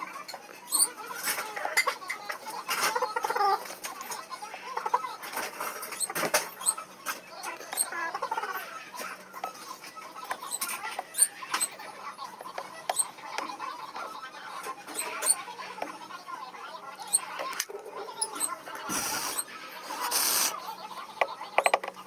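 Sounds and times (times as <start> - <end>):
squeaky rubbing and scraping: 0.3 - 1.6, 5.2 - 13.5, 14.7 - 15.6, 16.9 - 20.6
small clicks and taps: 21.2 - 22.0.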